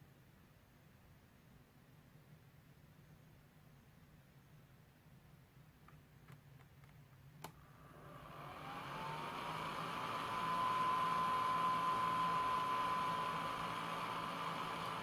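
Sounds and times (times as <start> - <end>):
fan blower whine: 7.5 - 15.0.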